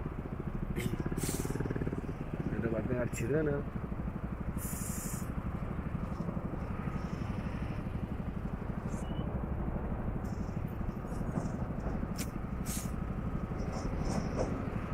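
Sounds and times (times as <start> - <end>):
motorcycle engine running: 0.0 - 14.9
road and wind noise: 0.0 - 14.9.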